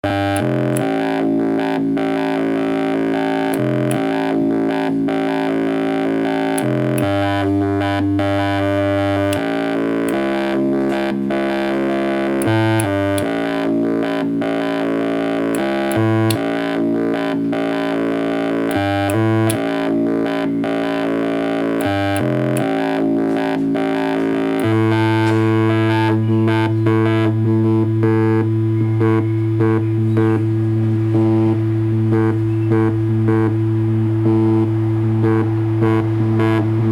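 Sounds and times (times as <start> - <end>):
sharp clicks: 0.0 - 27.0
synthesizer droning notes: 0.0 - 36.9.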